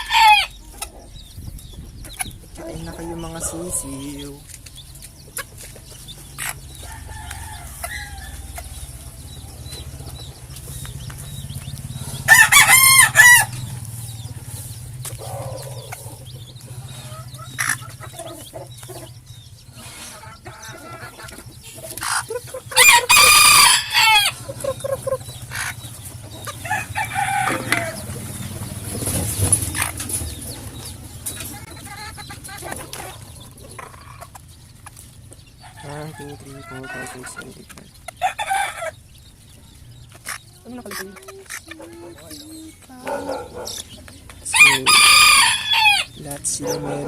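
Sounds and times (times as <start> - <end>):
rooster crowing: 0.0 - 0.6, 6.8 - 9.0, 12.2 - 13.6, 22.7 - 24.4, 26.6 - 28.1, 44.5 - 47.0
chickens clucking: 0.0 - 47.0.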